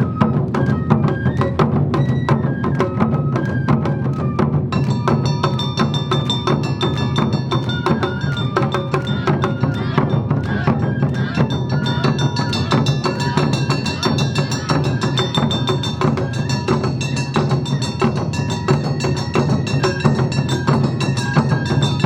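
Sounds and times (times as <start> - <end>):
taiko drums: 0.0 - 22.0
gongs clanging: 4.8 - 10.1, 11.4 - 22.0.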